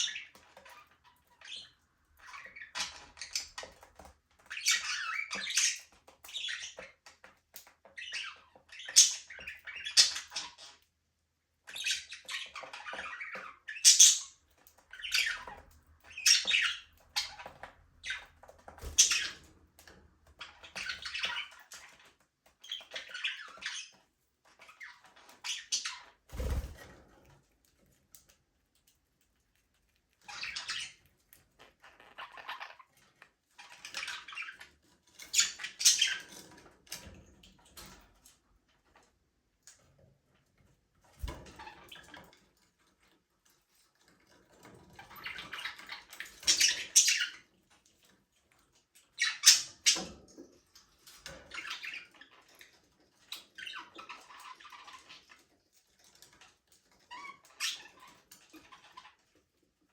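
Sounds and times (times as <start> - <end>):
budgerigars chirping and chattering: 0.0 - 10.9, 11.6 - 19.5, 20.3 - 26.6, 30.2 - 36.6, 44.7 - 47.8, 48.8 - 55.5, 56.3 - 59.4.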